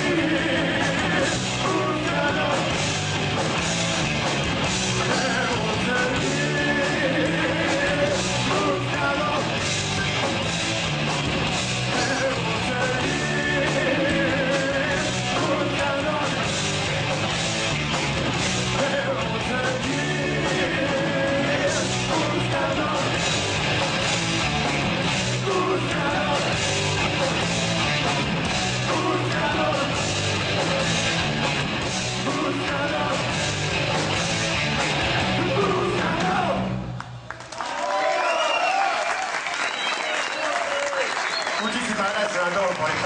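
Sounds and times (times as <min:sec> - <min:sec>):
person singing: 0:00.0 - 0:02.7, 0:05.0 - 0:09.6, 0:11.9 - 0:16.4, 0:18.7 - 0:23.2, 0:25.3 - 0:26.6, 0:28.8 - 0:30.1, 0:32.2 - 0:33.4, 0:35.4 - 0:36.7
distorted guitars: 0:00.0 - 0:37.0
drums: 0:00.0 - 0:37.4.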